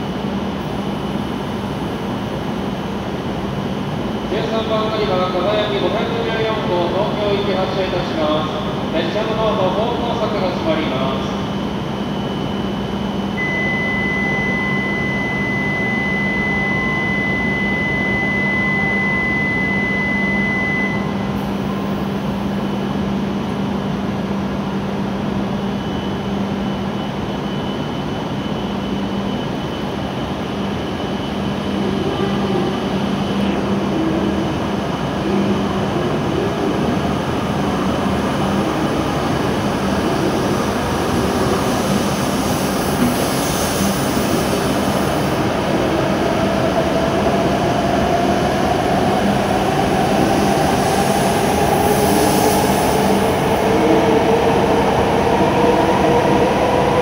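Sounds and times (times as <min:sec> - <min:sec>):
train mechanical hum and rush: 0:00.0 - 0:57.0
high-pitched warning tone: 0:11.9 - 0:21.4.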